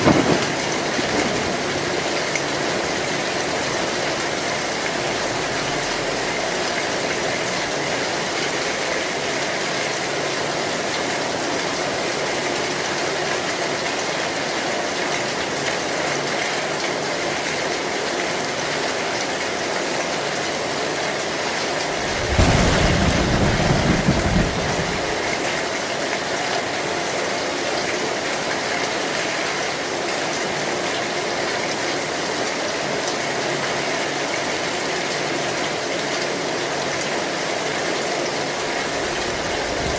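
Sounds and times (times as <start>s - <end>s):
deep rumble of thunder: 0.0s - 3.6s, 21.8s - 25.5s
rain on a tin roof: 0.0s - 39.9s.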